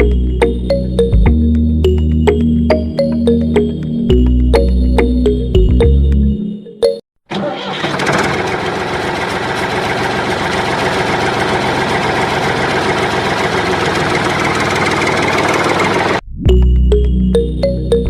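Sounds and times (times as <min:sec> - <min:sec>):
small engine rattling: 0:07.3 - 0:16.2.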